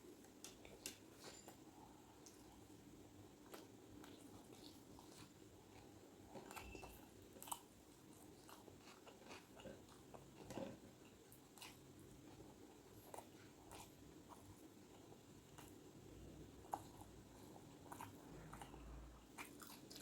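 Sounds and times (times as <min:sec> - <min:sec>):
person chewing food: 0:00.2 - 0:15.9, 0:16.5 - 0:20.0.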